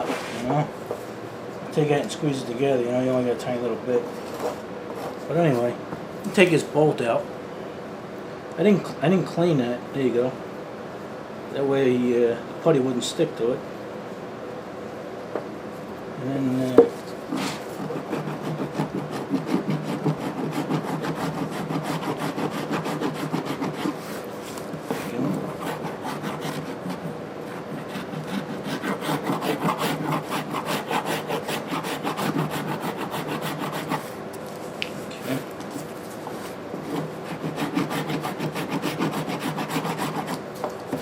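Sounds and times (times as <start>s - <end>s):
rasping strokes on epoxy filler: 17.3s - 24.3s, 24.9s - 34.1s, 36.9s - 40.4s.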